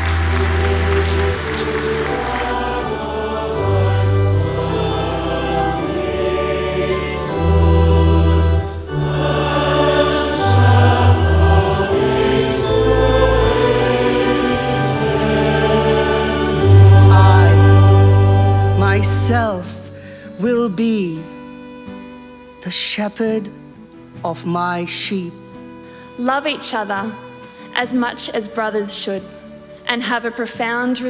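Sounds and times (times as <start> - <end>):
applause: 0.0 - 2.6
low bass notes: 0.0 - 19.9
choir singing: 0.0 - 20.0.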